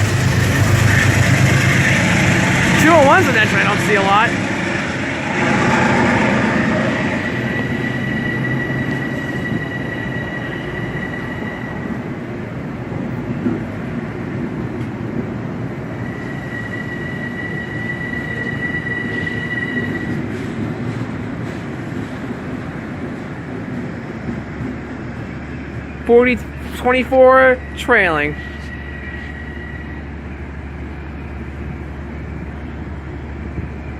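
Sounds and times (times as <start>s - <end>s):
train wheels rumbling on track: 0.0s - 33.9s
high wheel squeal: 0.6s - 12.0s, 16.0s - 20.3s, 26.5s - 30.5s.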